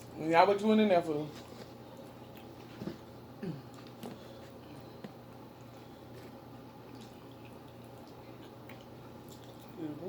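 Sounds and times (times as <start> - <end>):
chewing chicken wings: 3.7 - 9.8.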